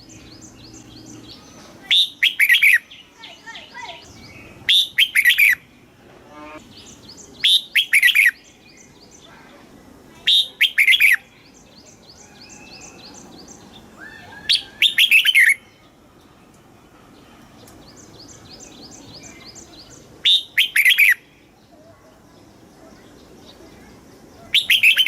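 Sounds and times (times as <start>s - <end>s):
bird singing short phrases: 0.0s - 5.6s, 6.3s - 9.5s, 10.2s - 15.9s, 17.6s - 21.7s, 23.0s - 25.0s
fast repeated bird chirps: 1.9s - 5.6s, 7.4s - 8.5s, 10.3s - 11.2s, 14.5s - 15.6s, 20.2s - 21.2s, 24.5s - 25.0s.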